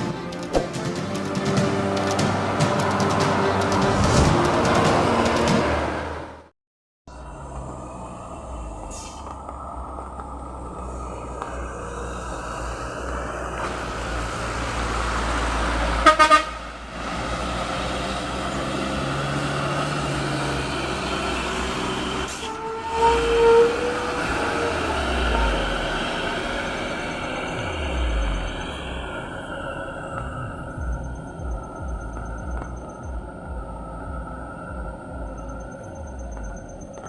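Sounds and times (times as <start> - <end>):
diesel truck engines running hard: 0.0 - 6.5, 7.1 - 37.0
truck horn toots: 15.9 - 16.7, 22.0 - 25.2.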